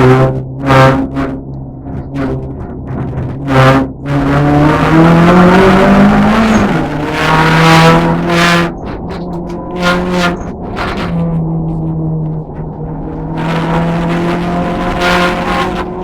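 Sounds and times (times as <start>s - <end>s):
race car engine at full throttle: 0.0s - 16.0s.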